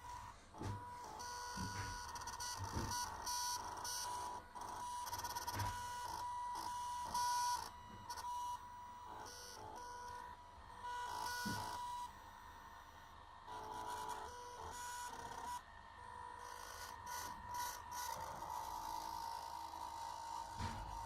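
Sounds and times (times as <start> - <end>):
stepper motors whining: 0.0 - 10.3, 10.9 - 12.2, 13.5 - 21.0.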